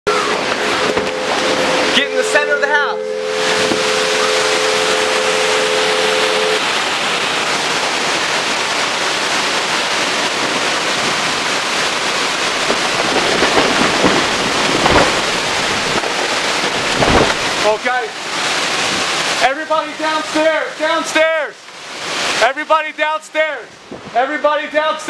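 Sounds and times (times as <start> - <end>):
storm wind: 0.1 - 19.4, 23.6 - 24.2
heavy rain: 0.1 - 25.0.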